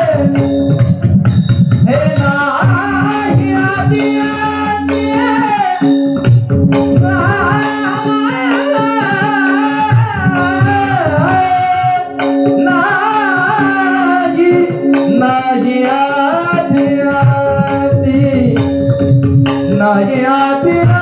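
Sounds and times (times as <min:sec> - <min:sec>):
drum beat: 0:00.0 - 0:05.1, 0:05.7 - 0:11.6
hand cymbals: 0:00.0 - 0:21.0
person singing devotional melody: 0:00.0 - 0:21.0.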